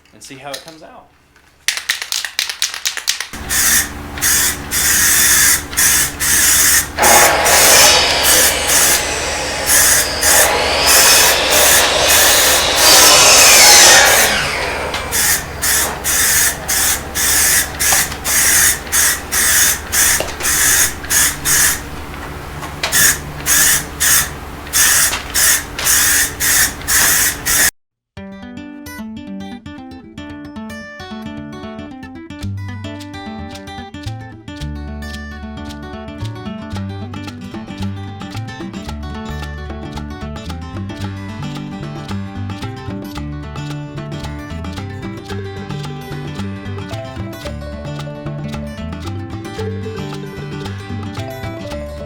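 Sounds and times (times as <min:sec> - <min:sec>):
aerosol spray can hissing: 0:03.4 - 0:27.7.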